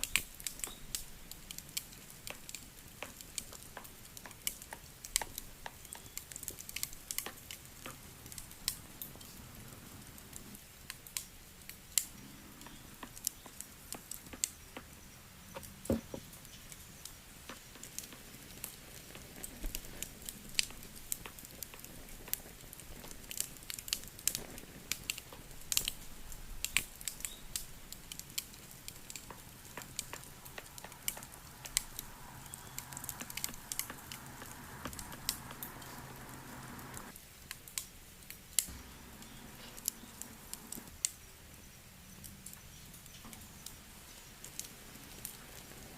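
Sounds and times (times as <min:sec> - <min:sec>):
wood fire crackling and popping: 0:00.0 - 0:45.9
steady hum: 0:29.5 - 0:37.1, 0:38.7 - 0:40.9.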